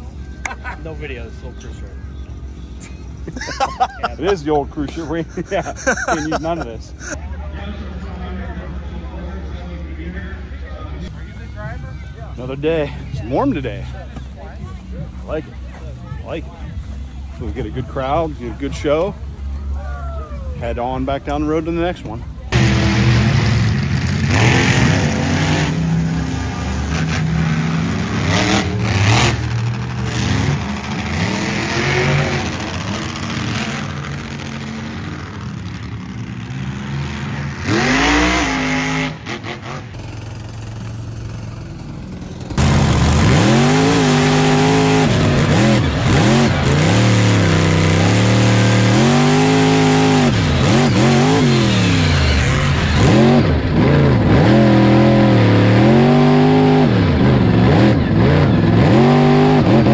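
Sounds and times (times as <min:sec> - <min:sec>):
monster truck engine revving: 0:22.5 - 0:59.9.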